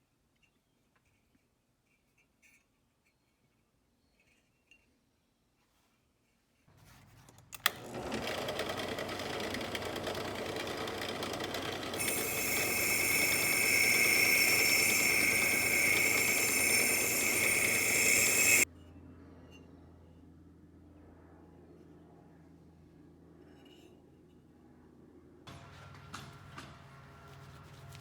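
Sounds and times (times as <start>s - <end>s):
power tool motor running: 7.6s - 18.7s.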